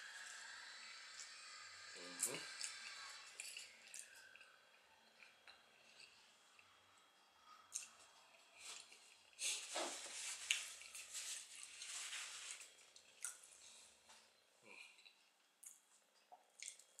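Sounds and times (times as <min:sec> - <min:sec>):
wet chewing: 0:02.2 - 0:06.8, 0:14.9 - 0:17.0.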